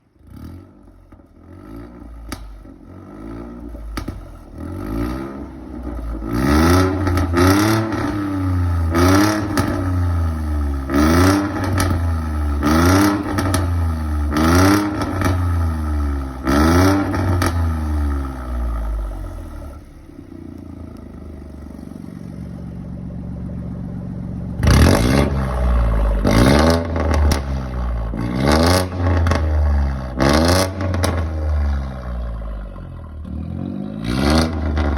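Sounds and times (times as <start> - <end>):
car engine revving: 0.2 - 34.9.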